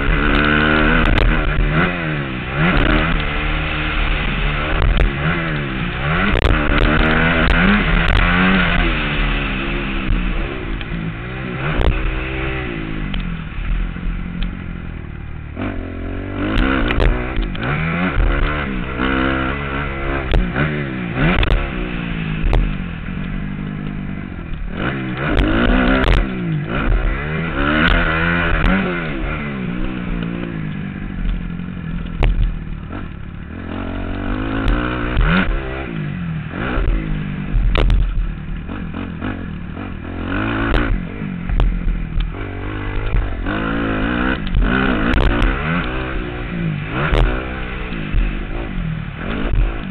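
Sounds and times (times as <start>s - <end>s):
motocross engine revving: 0.0s - 49.9s
knocks and clatter: 2.6s - 9.2s, 36.6s - 39.3s.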